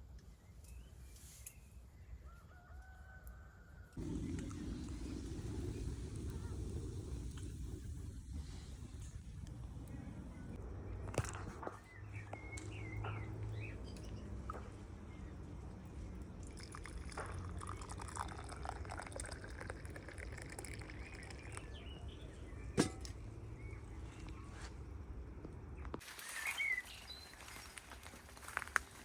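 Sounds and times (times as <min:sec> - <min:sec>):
bird chirps: 0:09.8 - 0:15.4, 0:25.8 - 0:27.7
liquid pouring: 0:16.1 - 0:22.0.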